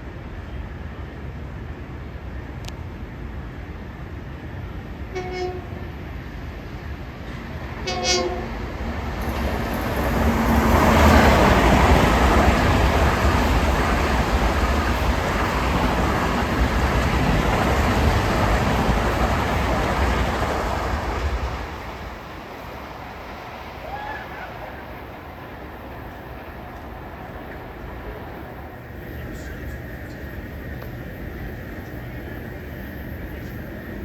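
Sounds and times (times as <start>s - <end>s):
train wheels rushing on rails: 0.0s - 34.0s
train horn blasts: 5.1s - 6.0s, 7.8s - 8.7s.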